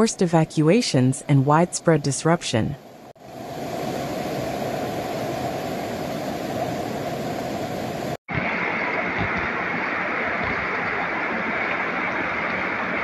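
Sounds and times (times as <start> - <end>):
floodwater rushing: 3.3 - 13.0.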